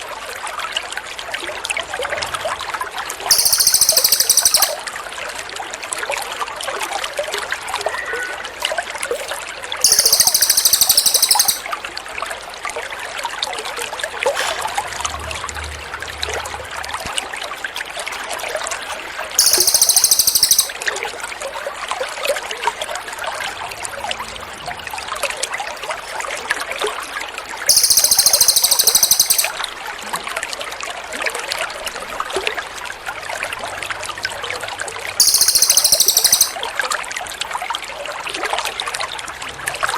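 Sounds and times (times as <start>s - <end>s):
high buzzy songbird trill: 3.3s - 4.8s, 9.8s - 11.6s, 19.4s - 20.8s, 27.7s - 29.5s, 35.2s - 36.6s.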